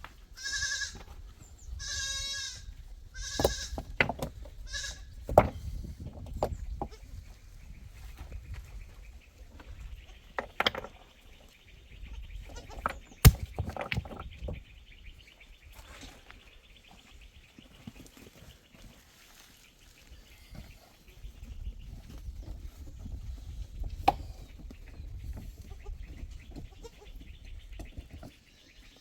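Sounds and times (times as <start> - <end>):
goats and sheep bleating: 0.3 - 1.0.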